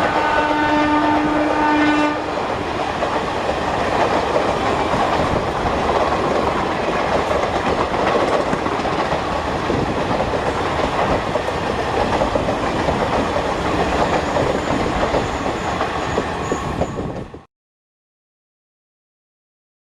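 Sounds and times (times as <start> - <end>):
train wheels clattering over rails: 2.2 - 17.4.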